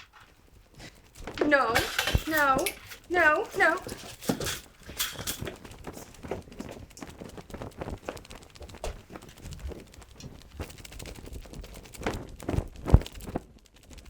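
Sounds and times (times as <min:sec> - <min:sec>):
irregular clicks and knocks: 0:00.0 - 0:07.8.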